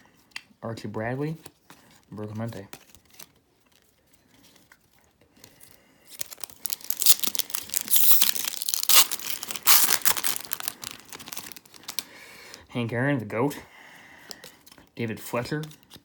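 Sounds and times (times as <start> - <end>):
foil wrapper tearing and crinkling: 6.1 - 12.2.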